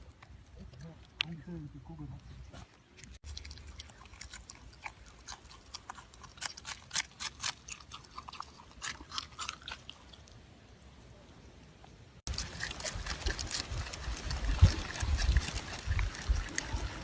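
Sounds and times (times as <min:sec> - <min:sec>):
crunchy chewing of hard food: 0:02.4 - 0:10.4, 0:12.3 - 0:17.0.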